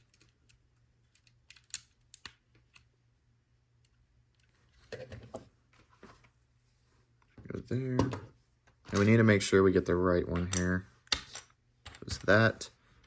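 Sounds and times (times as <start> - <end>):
plastic pieces clicking together: 0.0 - 2.9.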